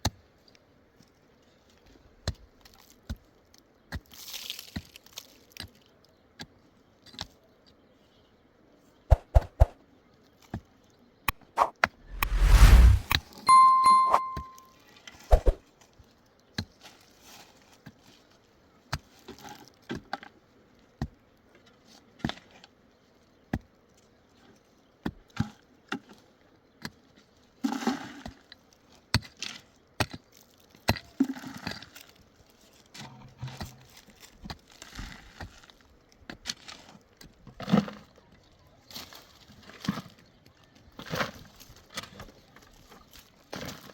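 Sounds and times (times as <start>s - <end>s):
brief high tone: 11.6s - 14.7s.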